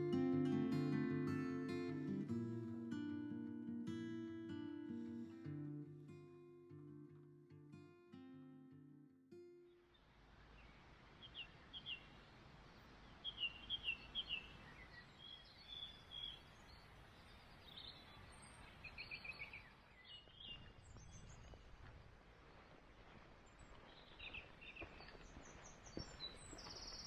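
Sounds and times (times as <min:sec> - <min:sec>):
small birds chirping: 0:09.7 - 0:27.0
faint low wind rumble: 0:09.9 - 0:27.0.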